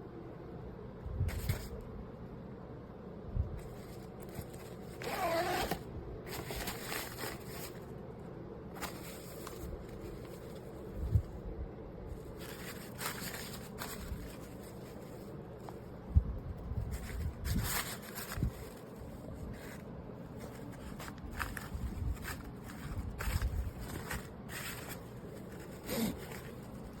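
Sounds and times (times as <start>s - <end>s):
suitcase zipper being pulled: 5.0s - 5.8s.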